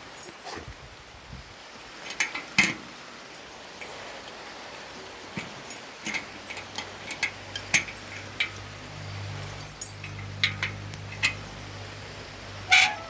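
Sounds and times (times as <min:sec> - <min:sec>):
light metallic clinks: 0:01.8 - 0:13.0
low steady hum: 0:05.4 - 0:13.0.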